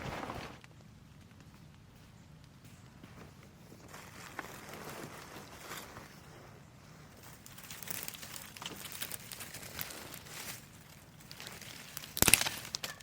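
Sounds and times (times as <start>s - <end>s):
dry leaves rustling and crunching: 0.0s - 0.7s, 3.8s - 13.0s
sharp snaps: 12.0s - 13.0s.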